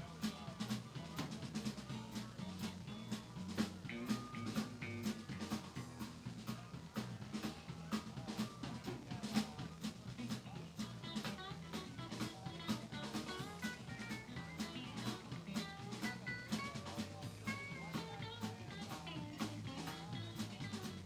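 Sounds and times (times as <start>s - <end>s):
bass line: 0.0s - 21.0s
drum kit beat: 0.0s - 21.0s.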